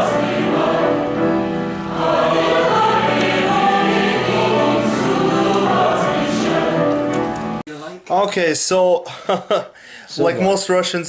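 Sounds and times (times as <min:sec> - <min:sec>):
choir singing held chords: 0:00.0 - 0:07.6.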